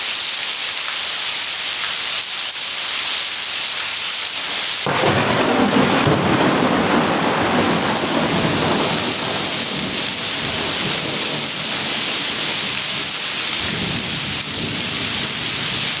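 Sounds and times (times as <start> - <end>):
heavy rain falling: 0.0 - 16.0
thunder rumble: 4.4 - 16.0.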